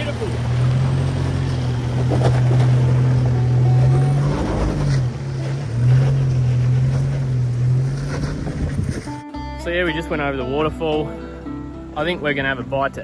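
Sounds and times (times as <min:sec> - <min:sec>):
vehicle engine running under load: 0:00.0 - 0:09.2.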